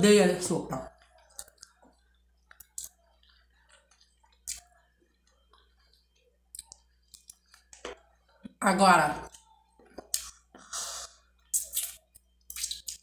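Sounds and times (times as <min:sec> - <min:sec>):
faint chewing: 0:00.8 - 0:08.6.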